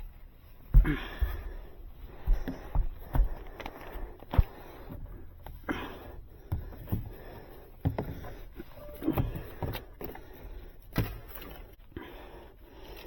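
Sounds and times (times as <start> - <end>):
knocks and scrapes in wall: 6.4 - 11.7.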